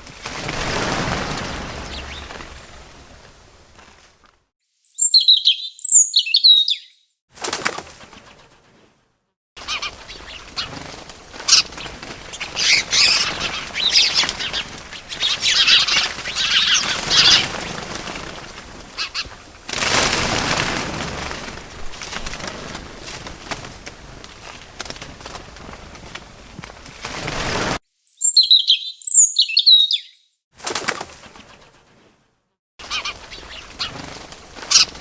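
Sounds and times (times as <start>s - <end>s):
wings flapping: 0.0s - 4.4s, 7.3s - 9.0s, 9.6s - 27.8s, 30.6s - 32.2s, 32.8s - 35.0s
birds chirping: 0.5s - 3.1s, 4.7s - 7.1s, 9.6s - 18.3s, 28.0s - 30.3s, 32.8s - 35.0s.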